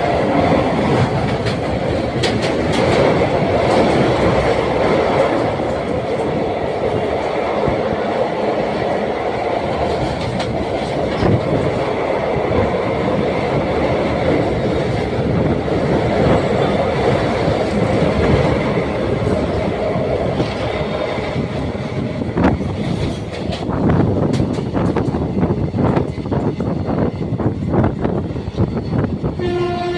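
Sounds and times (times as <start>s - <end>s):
train rumbling on a bridge: 0.0s - 29.9s
wheels clattering over rail joints: 0.3s - 6.4s
train wheel squeal: 28.3s - 29.9s.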